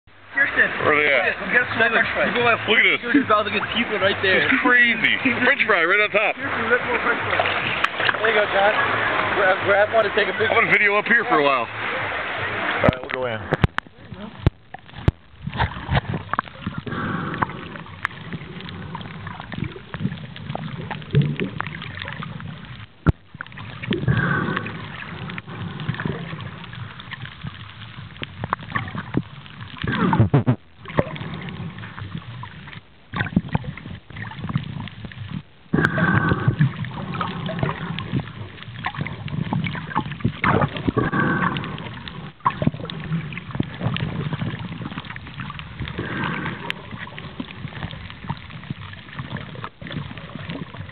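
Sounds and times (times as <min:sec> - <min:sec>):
muffled water sloshing underwater: 0:00.1 - 0:50.9.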